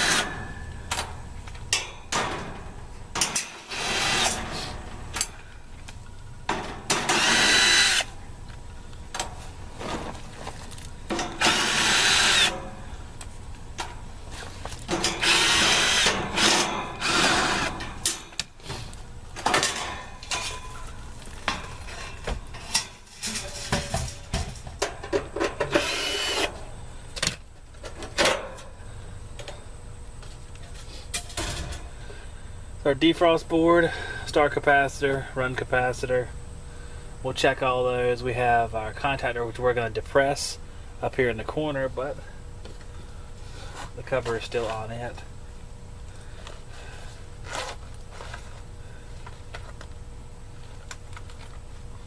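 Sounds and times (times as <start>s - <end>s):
steady low hum: 0.0s - 52.0s
metal rasping burst: 11.2s - 12.8s, 14.9s - 18.3s.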